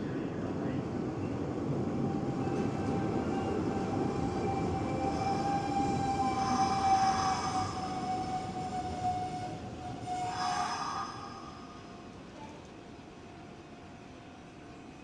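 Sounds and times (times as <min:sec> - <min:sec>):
train wheels rumbling on track: 0:00.0 - 0:14.5
steady train whine: 0:00.0 - 0:14.8
high-pitched wheel squealing: 0:04.6 - 0:12.0.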